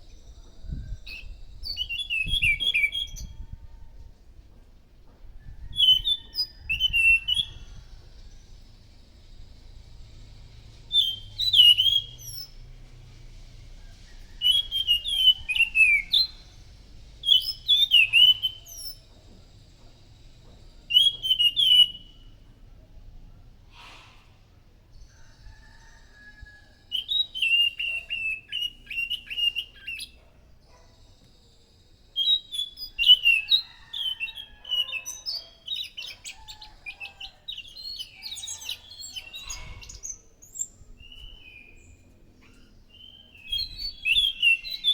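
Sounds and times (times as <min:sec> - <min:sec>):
thrush singing whistled phrases: 0:10.9 - 0:12.6, 0:14.4 - 0:16.6, 0:17.2 - 0:19.0, 0:20.9 - 0:22.4, 0:26.9 - 0:30.2, 0:42.9 - 0:44.9.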